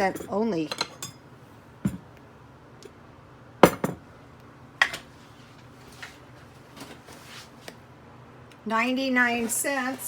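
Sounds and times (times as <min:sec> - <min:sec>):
kitchenware clinking: 0:00.0 - 0:01.2, 0:01.9 - 0:02.1, 0:03.6 - 0:04.0.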